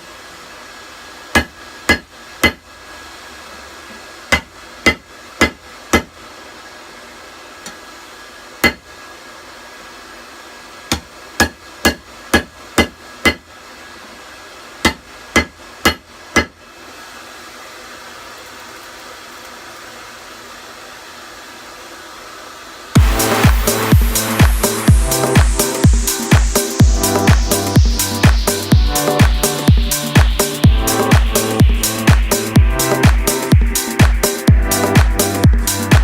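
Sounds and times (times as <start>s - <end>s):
forge blower hiss: 16.6s - 36.0s.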